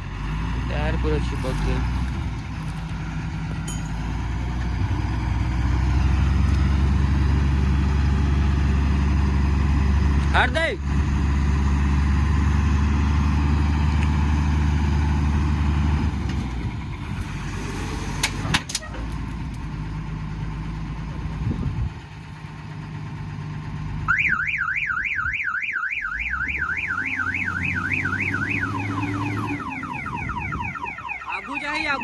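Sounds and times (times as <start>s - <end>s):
diesel engine running: 0.0s - 32.0s
warbling vehicle alarm: 24.1s - 32.0s.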